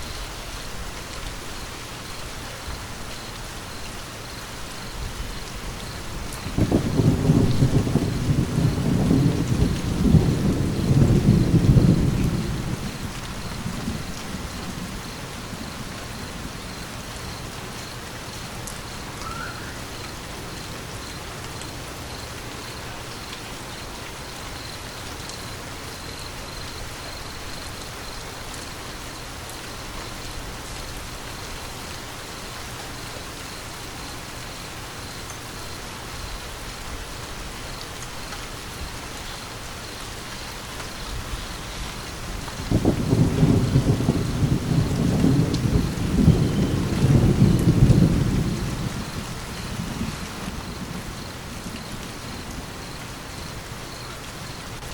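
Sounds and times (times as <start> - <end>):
steady rain falling: 0.0 - 54.9
low rumble of thunder: 4.8 - 22.3, 40.1 - 54.9.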